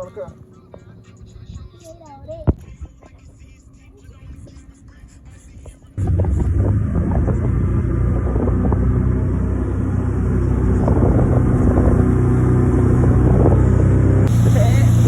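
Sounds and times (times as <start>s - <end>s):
boat engine running: 4.7s - 15.0s
wind on microphone: 5.6s - 15.0s.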